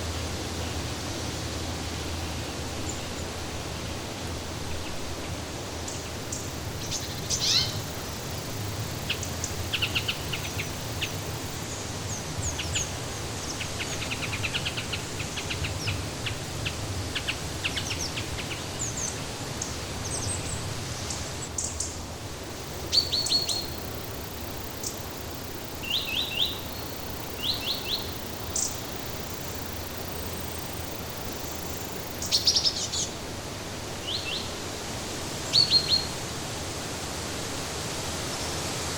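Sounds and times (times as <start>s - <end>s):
steady rushing hiss: 0.0s - 38.9s
small birds chirping: 5.9s - 21.9s, 22.5s - 33.1s.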